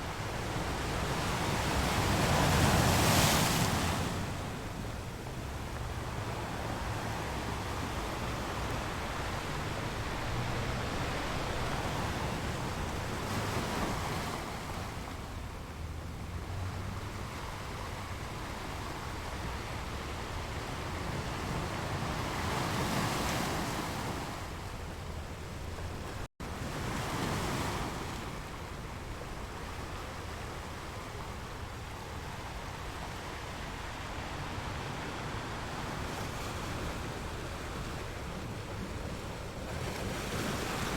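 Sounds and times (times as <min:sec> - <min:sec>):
sea surf washing in: 0:00.0 - 0:15.0
low wind rumble on microphone: 0:00.0 - 0:26.9.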